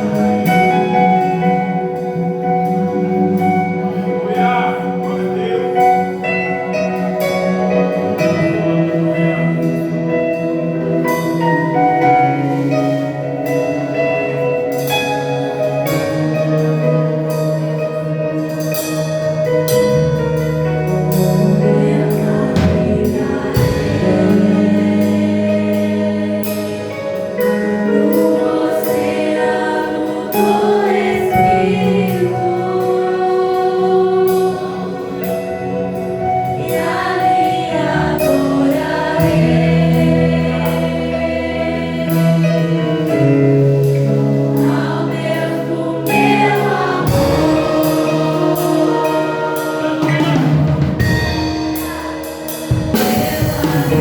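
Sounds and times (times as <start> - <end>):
band playing sustained chords: 0.0 - 54.0
steady drum beat: 18.8 - 43.0, 43.8 - 54.0
voices singing: 21.6 - 54.0.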